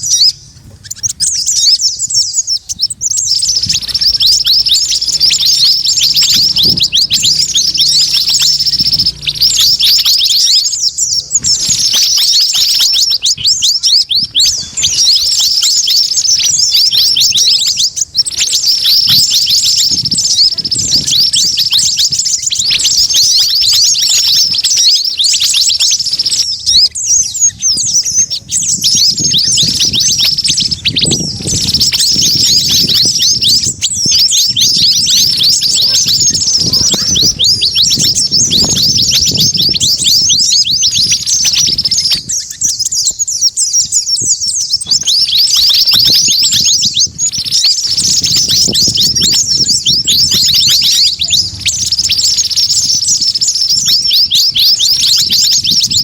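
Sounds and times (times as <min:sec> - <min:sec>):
small songbirds chirping: 0:00.0 - 0:56.0
low rumble: 0:03.0 - 0:11.9.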